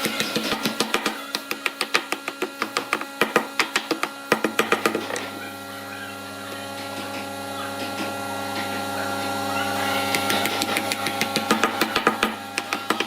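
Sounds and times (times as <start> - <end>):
electric motor humming: 0.0 - 13.0.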